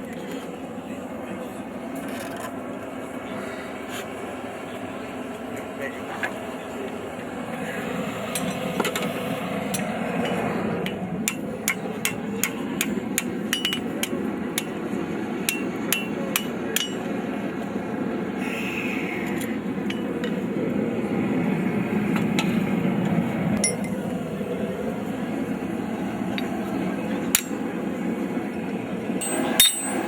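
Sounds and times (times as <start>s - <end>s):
hammer striking steel on anvil: 9.8s - 14.8s, 15.4s - 17.1s, 23.6s - 24.0s, 27.3s - 27.6s, 29.2s - 30.0s.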